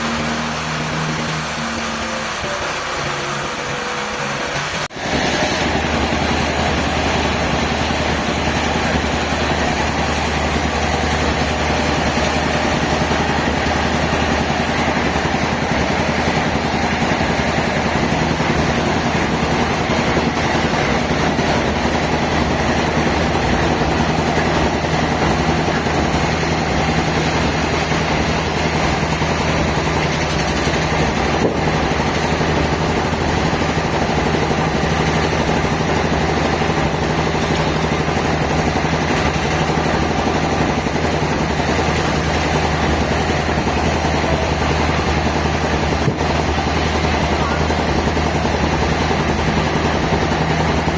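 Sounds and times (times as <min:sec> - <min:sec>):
sawmill machinery drone: 0:00.0 - 0:50.9.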